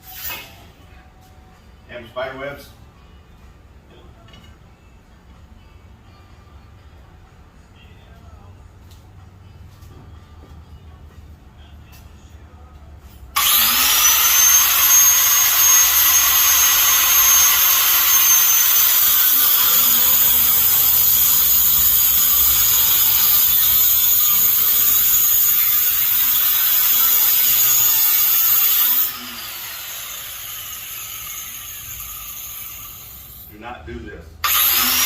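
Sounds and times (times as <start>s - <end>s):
angle grinder cutting steel: 13.4s - 33.5s, 34.4s - 35.0s.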